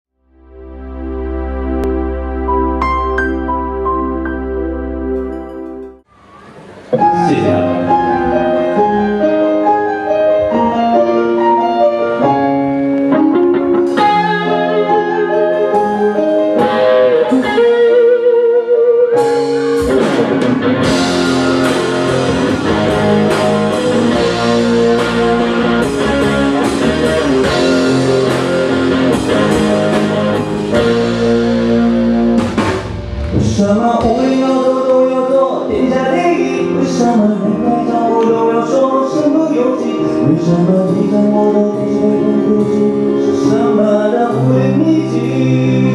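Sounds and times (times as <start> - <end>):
live band playing: 0.8 - 45.9
drums: 7.9 - 18.3, 19.0 - 37.9, 40.4 - 45.9.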